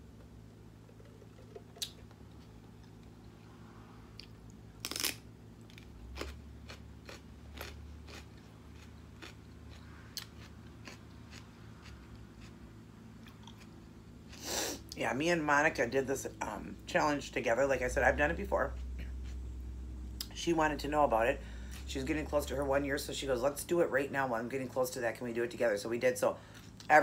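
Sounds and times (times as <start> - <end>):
crunchy chewing of celery: 4.1 - 14.6.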